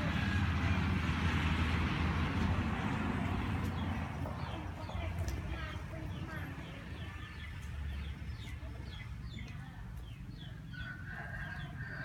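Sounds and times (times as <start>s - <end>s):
birds chirping: 3.5s - 12.0s.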